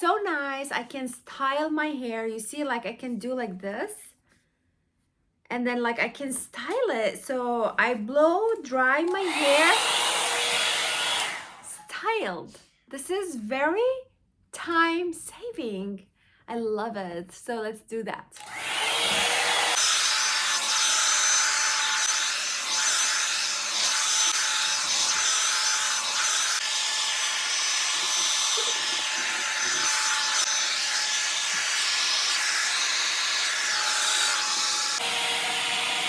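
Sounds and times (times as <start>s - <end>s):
hot air brush blowing: 9.1s - 11.8s, 18.4s - 36.0s.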